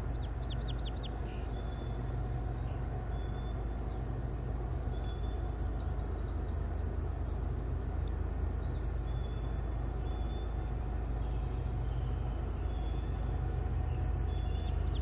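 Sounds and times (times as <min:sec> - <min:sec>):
bird chirping: 0:00.0 - 0:06.9, 0:08.0 - 0:15.0
diesel locomotives rumbling: 0:00.0 - 0:15.0.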